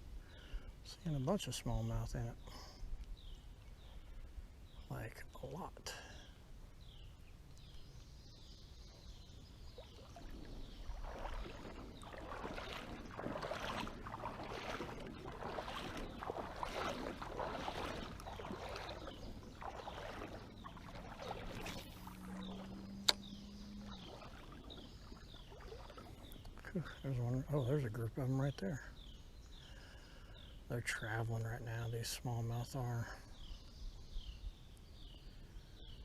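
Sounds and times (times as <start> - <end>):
creek water sloshing: 4.8 - 35.0.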